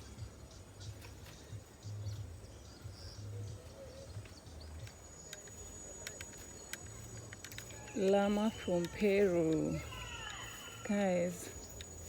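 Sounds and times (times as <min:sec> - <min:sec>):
faint bird chirps: 0:00.0 - 0:12.0
insects: 0:00.0 - 0:12.0
light clicks: 0:04.2 - 0:10.5.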